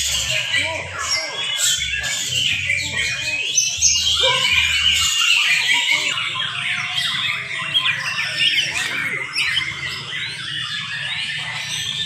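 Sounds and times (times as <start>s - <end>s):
birds whistling and trilling: 0.0s - 12.0s.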